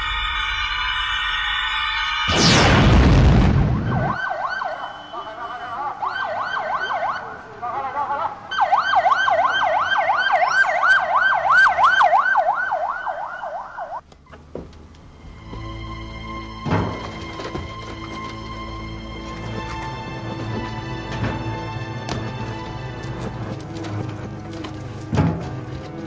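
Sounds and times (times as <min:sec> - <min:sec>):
loud rushing burst: 0:02.2 - 0:04.2
police siren yelping: 0:03.8 - 0:07.4, 0:08.0 - 0:14.0.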